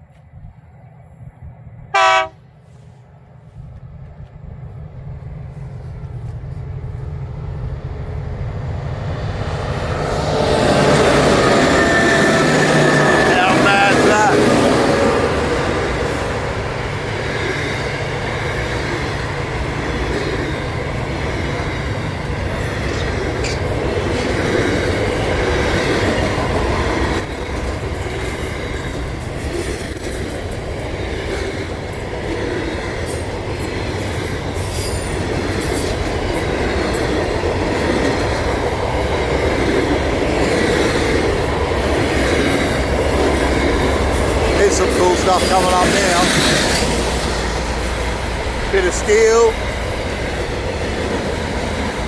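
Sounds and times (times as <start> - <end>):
train wheels clattering on rails: 5.6 - 52.0
high-pitched wheel squeal: 26.6 - 31.7.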